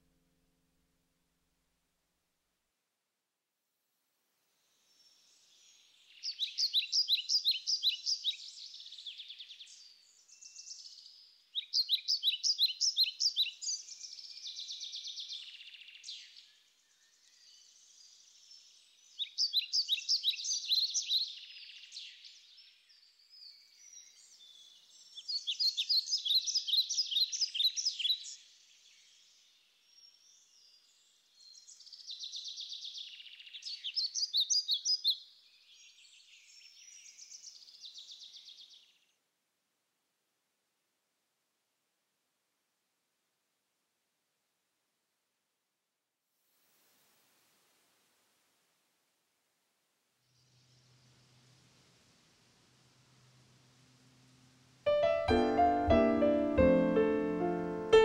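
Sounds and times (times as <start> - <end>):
soft bird twittering: 4.8 - 39.0.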